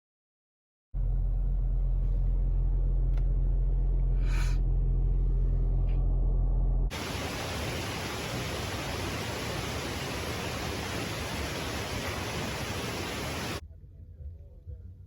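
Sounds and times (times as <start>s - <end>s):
car cabin rumble while driving: 1.0s - 13.6s
even rushing hiss: 6.9s - 13.6s.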